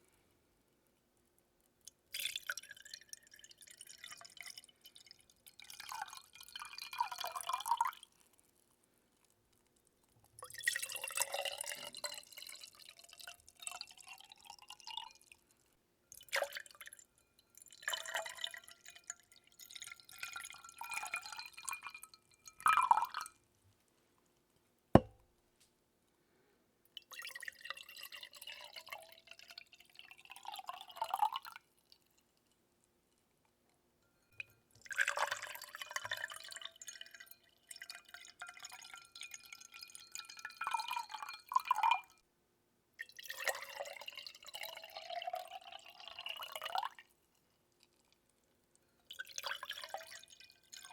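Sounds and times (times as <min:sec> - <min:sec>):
water dripping and trickling: 0:01.8 - 0:08.3, 0:10.0 - 0:23.4, 0:27.0 - 0:32.6, 0:34.2 - 0:42.2
sharp tap: 0:25.0 - 0:25.2.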